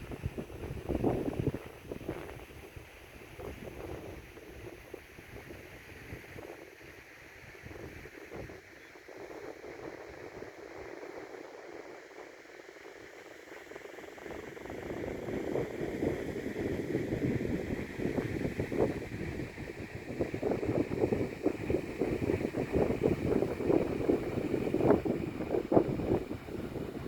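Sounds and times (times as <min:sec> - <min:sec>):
wind buffeting microphone: 0:00.0 - 0:06.6, 0:14.2 - 0:27.0
steady rushing hiss: 0:00.0 - 0:27.0.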